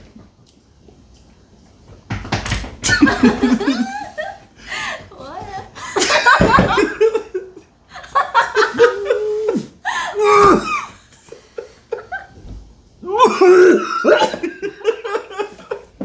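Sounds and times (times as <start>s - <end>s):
people laughing: 2.9s - 5.0s, 5.8s - 9.6s, 13.1s - 15.9s.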